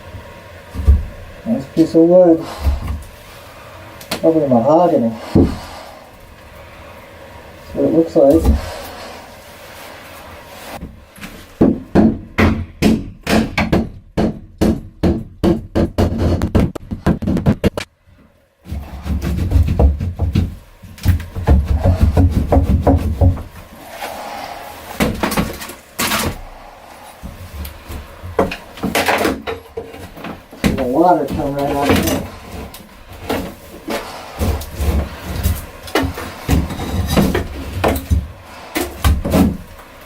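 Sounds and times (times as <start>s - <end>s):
hard knocks on wood: 11.6s - 17.8s, 18.7s - 23.5s
thumps: 11.6s - 17.9s
low rumbling: 21.4s - 28.9s.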